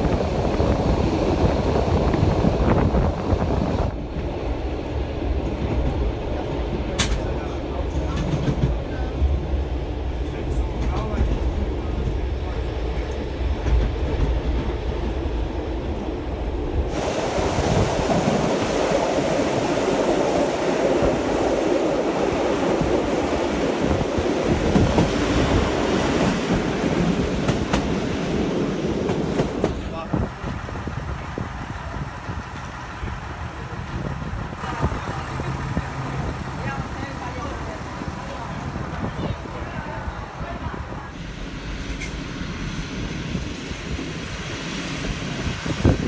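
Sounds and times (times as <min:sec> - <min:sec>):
rushing air: 0:00.0 - 0:06.3, 0:14.4 - 0:39.2, 0:40.7 - 0:46.0
train wheels rumbling: 0:00.0 - 0:46.0.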